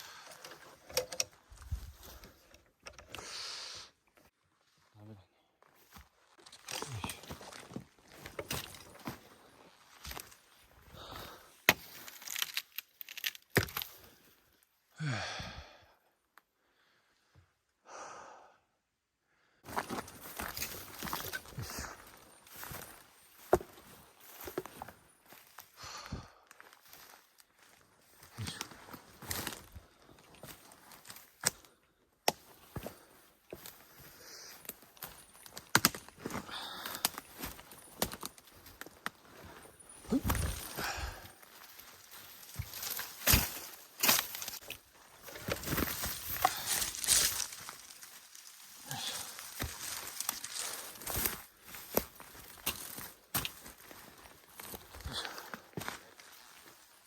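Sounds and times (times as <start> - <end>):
twigs cracking underfoot: 5.8 - 14.2, 19.7 - 25.8, 26.5 - 57.0
twigs snapping: 11.7 - 14.0, 34.7 - 39.2, 40.1 - 53.8
man sighing: 14.9 - 16.0, 36.3 - 37.2, 40.1 - 41.4, 48.8 - 49.4
footsteps through dry leaves: 40.0 - 54.6.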